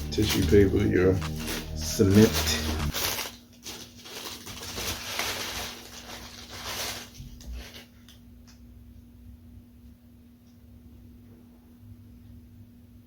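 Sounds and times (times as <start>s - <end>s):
tissue paper rustling and crinkling: 0.0s - 8.1s.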